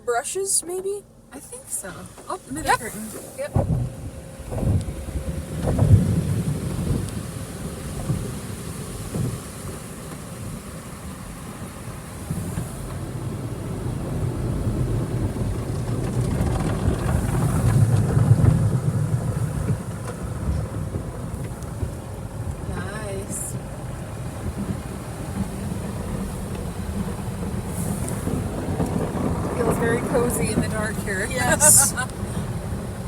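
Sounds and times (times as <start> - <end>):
car wash brushes scrubbing: 1.8 - 3.6, 23.9 - 33.0.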